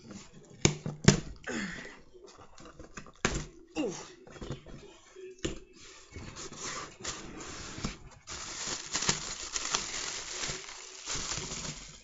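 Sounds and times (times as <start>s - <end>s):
packaging rustling and crinkling: 6.4s - 12.0s.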